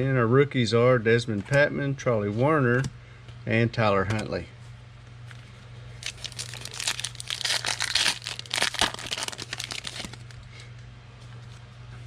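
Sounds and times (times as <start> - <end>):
foil wrapper crinkling and tearing: 6.0 - 10.4.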